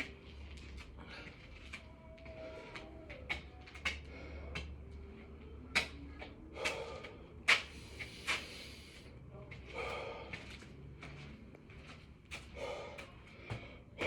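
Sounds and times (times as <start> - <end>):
hard breath: 6.5 - 10.6, 12.4 - 14.0.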